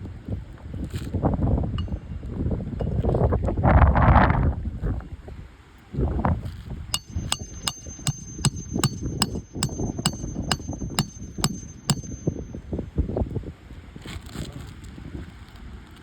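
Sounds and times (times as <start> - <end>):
wind rumble on microphone: 0.0 - 6.8, 12.1 - 16.0
hammer tapping metallic strikes: 7.0 - 12.6.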